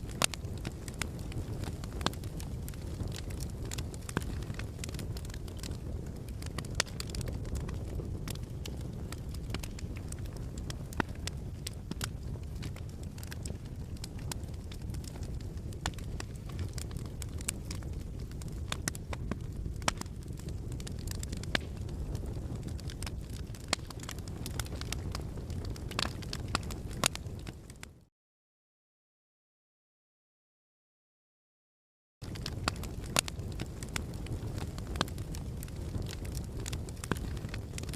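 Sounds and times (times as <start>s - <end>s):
wood fire crackling: 0.0s - 28.0s, 32.2s - 37.9s.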